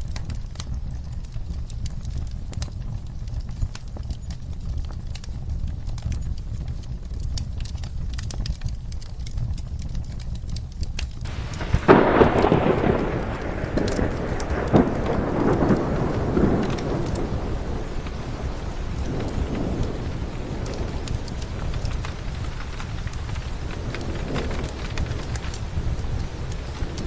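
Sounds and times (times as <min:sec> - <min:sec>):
steady rain: 0:00.0 - 0:27.0
thunder clap rolling: 0:11.2 - 0:27.0.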